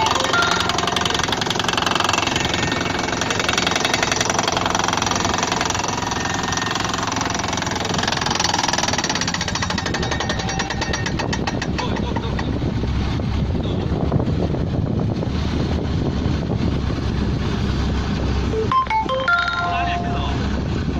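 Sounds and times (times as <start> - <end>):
drilling hammer rattling: 0.0 - 12.8
engine droning: 0.0 - 20.9.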